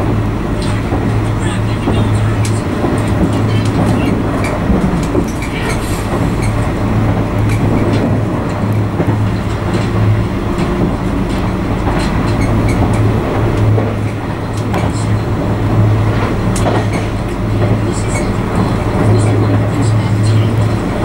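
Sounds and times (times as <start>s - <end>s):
train interior low hum: 0.0s - 21.0s
wheel and rail rumble: 0.0s - 21.0s.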